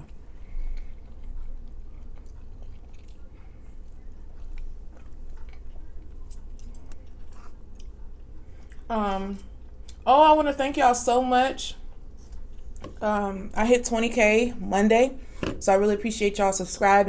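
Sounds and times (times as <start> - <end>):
person chewing food: 0.0 - 8.9, 11.8 - 13.0.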